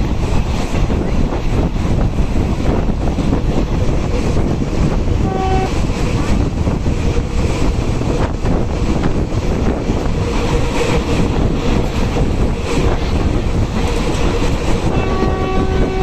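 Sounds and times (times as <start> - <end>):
train wheels rumbling on rails: 0.0 - 16.0
train horn toot: 5.2 - 5.8, 14.8 - 16.0.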